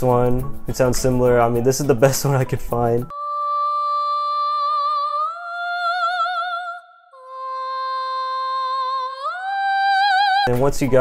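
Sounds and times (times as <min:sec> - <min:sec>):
woman singing wordless held notes: 0:03.1 - 0:10.5.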